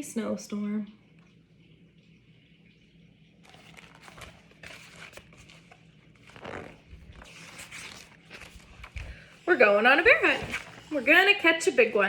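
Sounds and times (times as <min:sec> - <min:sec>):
book pages rustling: 0:03.4 - 0:12.0.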